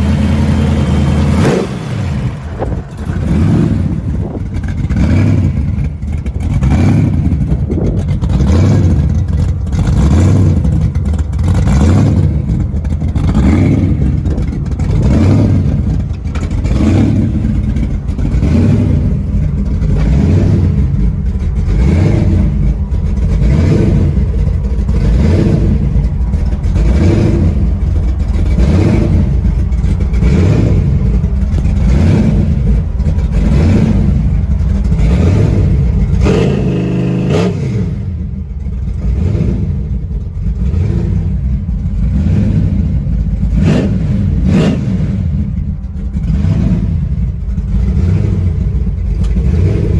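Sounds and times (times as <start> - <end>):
truck engine running loudly: 0.0 - 49.9.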